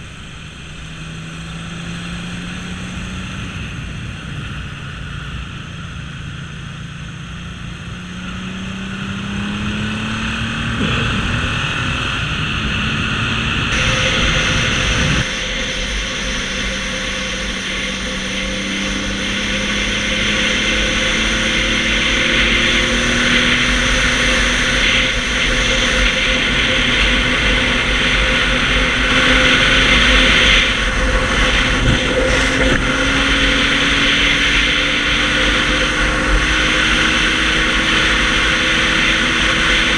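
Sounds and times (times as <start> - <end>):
motorcycle engine running: 0.0 - 39.9
wind rush over microphone: 10.5 - 39.9.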